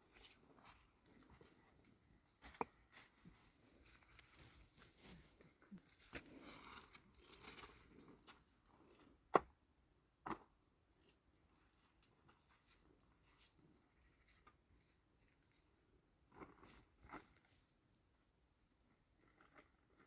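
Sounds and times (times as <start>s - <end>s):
rustling and handling noises: 0.0s - 9.0s, 11.0s - 17.8s.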